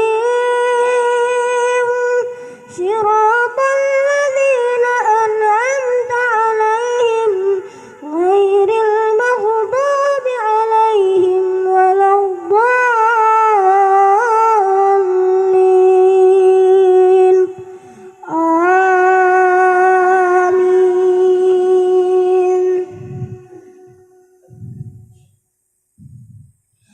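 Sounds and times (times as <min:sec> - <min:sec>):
boy chanting melodically: 0:00.0 - 0:25.2.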